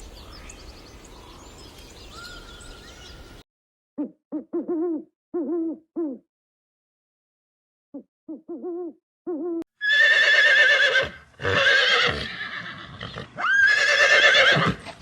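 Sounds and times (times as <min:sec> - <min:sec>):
horse whinnying: 0:09.8 - 0:15.0.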